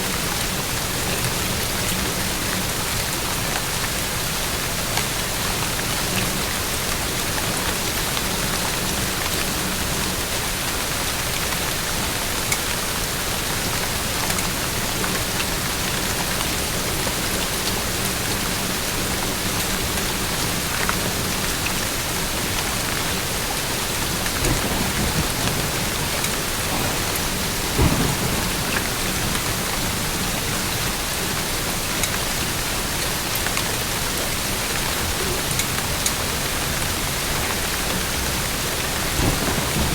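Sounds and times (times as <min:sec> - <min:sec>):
steady rain hiss: 0:00.0 - 0:39.9
low rumble: 0:24.2 - 0:30.2.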